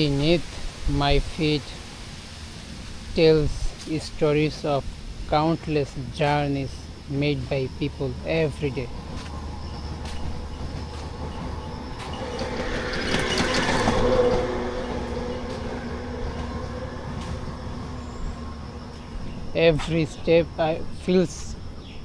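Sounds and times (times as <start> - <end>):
vehicle passing by: 8.6 - 19.1.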